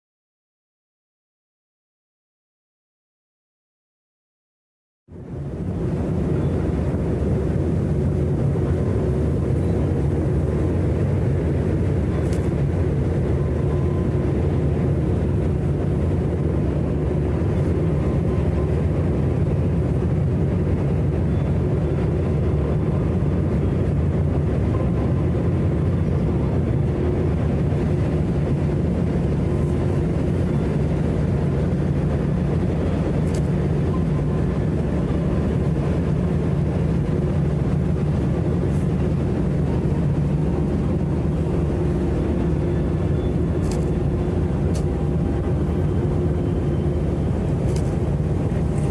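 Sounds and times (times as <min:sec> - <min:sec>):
ship engines humming: 0:05.2 - 0:48.9.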